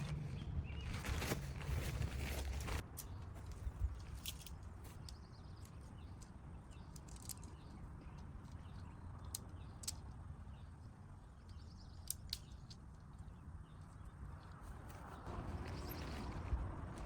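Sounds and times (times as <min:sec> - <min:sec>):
low outdoor rumble: 0:14.9 - 0:17.0.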